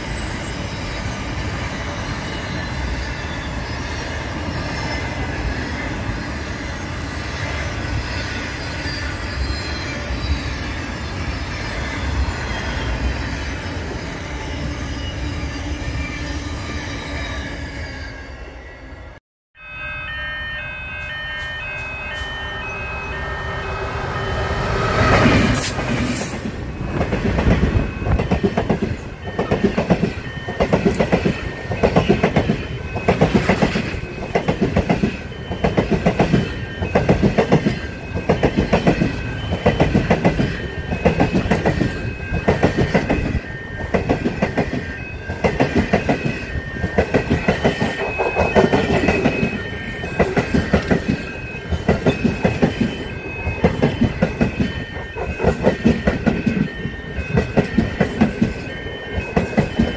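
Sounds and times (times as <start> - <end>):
high ringing tone: 0.0 - 59.9
train rumble: 21.0 - 59.9
train wheels clickety-clack: 24.9 - 59.9.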